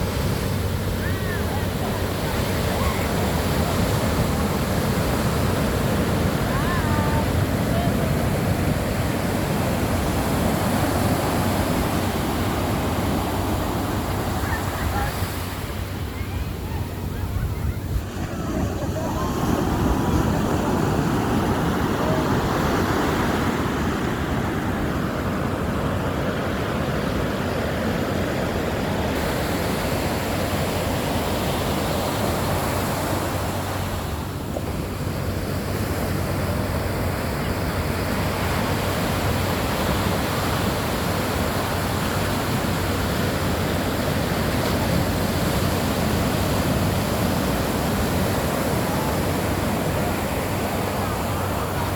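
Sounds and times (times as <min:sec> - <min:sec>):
ocean waves breaking: 0:00.0 - 0:51.9.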